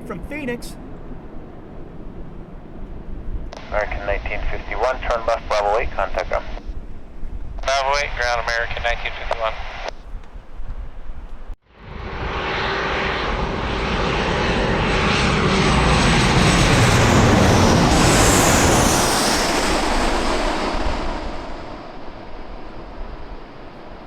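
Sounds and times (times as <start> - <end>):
jet airliner passing: 0.0 - 24.0
high engine whine: 3.5 - 6.8, 11.7 - 24.0.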